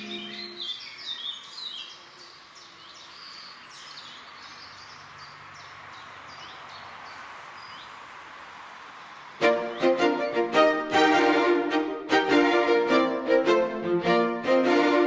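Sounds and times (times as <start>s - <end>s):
small birds chirping: 0.0s - 8.0s
steady outdoor hiss: 0.0s - 15.0s.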